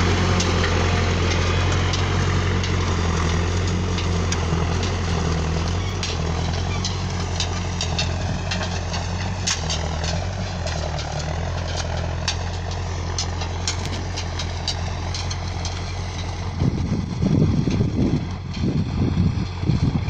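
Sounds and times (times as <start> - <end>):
backhoe engine under load: 0.0 - 20.0
sharp rattling clicks: 1.4 - 16.4
wind buffeting microphone: 16.2 - 20.0.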